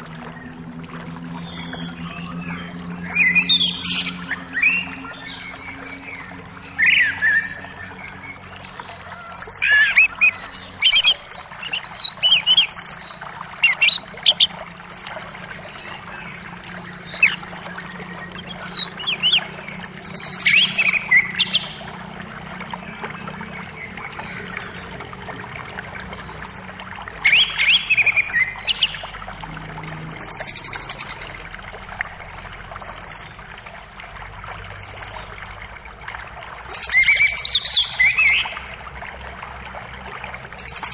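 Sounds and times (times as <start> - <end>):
forest birds chirping: 0.0 - 25.4, 26.1 - 31.4, 36.7 - 38.7
creek running water: 0.0 - 40.9.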